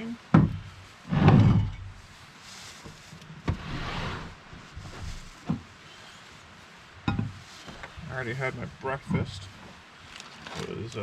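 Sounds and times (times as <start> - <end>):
heavy thump: 0.4 - 2.0
gear scraping slide: 1.1 - 2.0, 3.5 - 5.3.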